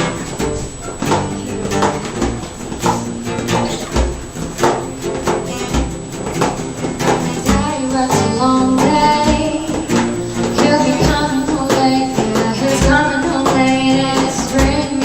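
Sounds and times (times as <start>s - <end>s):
acoustic guitar: 0.0s - 15.0s
person singing: 7.3s - 15.0s.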